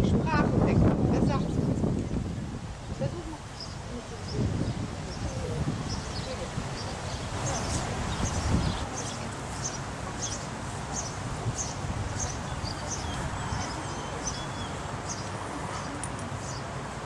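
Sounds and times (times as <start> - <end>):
wind and rustling: 0.0 - 17.0
bird chirping: 3.6 - 16.7.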